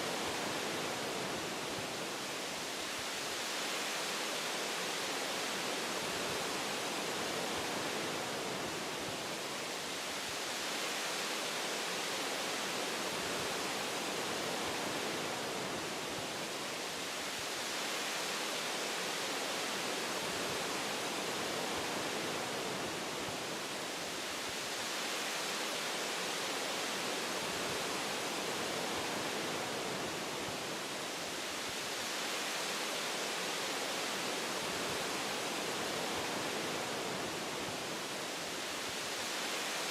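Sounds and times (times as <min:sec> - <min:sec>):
wind rushing through trees: 0:00.0 - 0:39.9.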